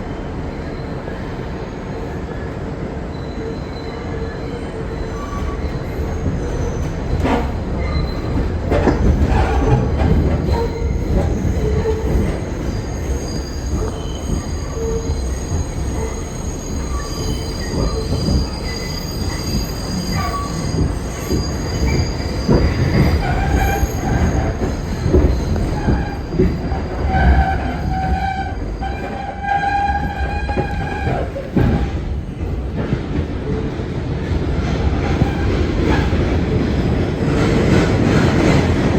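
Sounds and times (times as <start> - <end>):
train wheels rumbling on rail: 0.0 - 38.9
high-pitched wheel squeal: 10.4 - 31.9.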